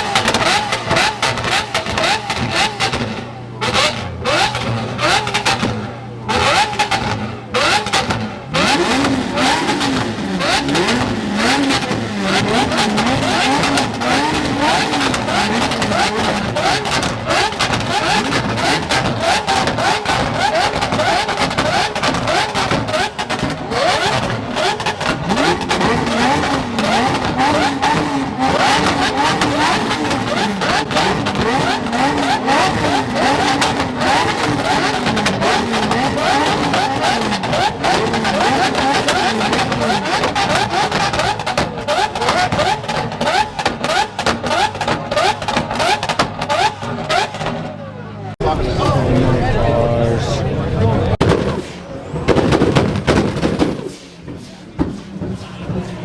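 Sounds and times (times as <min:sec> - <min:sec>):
car engine revving: 0:00.0 - 0:47.7, 0:48.3 - 0:56.0
other engine noise: 0:00.0 - 0:56.0.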